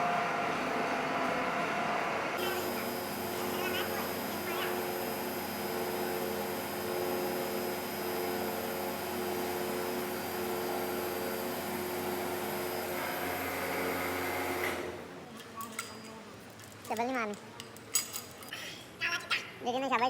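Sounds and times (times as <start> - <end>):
workshop machine whining: 0.0 - 15.1.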